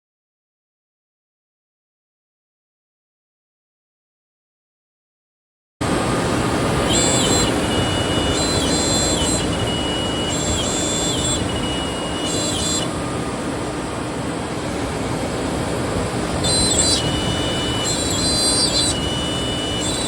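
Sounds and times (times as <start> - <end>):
cnc router running: 5.8 - 20.0.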